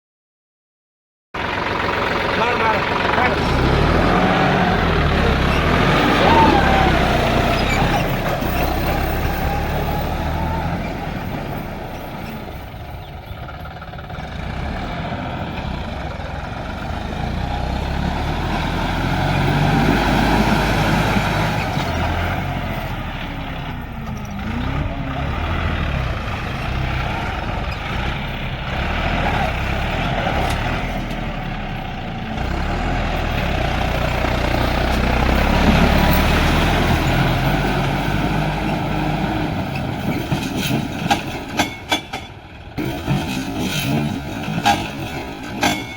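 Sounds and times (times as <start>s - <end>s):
tractor diesel engine running: 1.4s - 45.9s.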